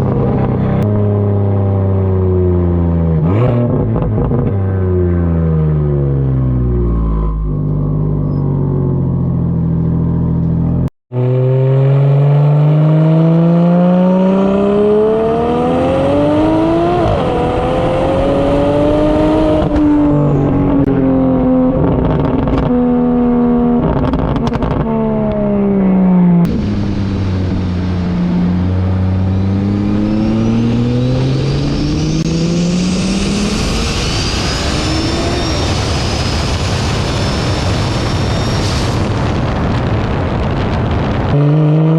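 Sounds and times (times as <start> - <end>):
car engine accelerating: 0.0 - 41.9
turbo whine: 15.5 - 41.4.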